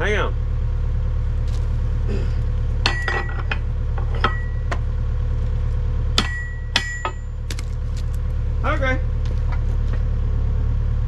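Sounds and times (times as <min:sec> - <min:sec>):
low engine drone: 0:00.0 - 0:11.0
metal tools clinking: 0:02.8 - 0:04.6.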